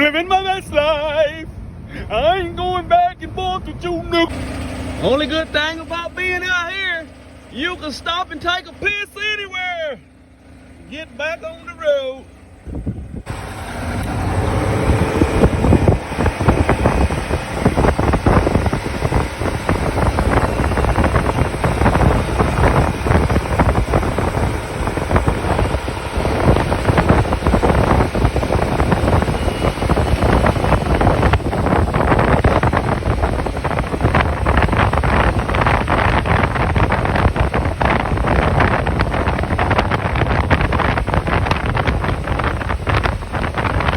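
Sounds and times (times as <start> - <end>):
truck engine and road noise: 0.0 - 43.9
wind buffeting microphone: 11.2 - 43.9.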